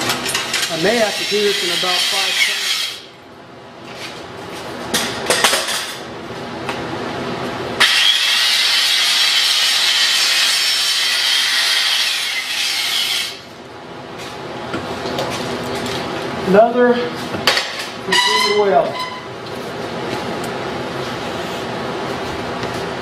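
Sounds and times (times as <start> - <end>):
welding arc crackling hiss: 7.8 - 13.4.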